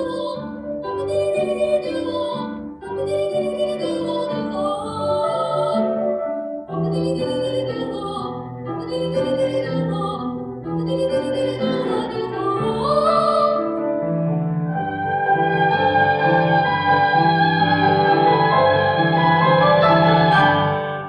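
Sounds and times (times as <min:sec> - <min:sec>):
girl singing soprano: 0:00.0 - 0:06.0, 0:06.7 - 0:13.8
piano accompaniment: 0:00.0 - 0:21.0.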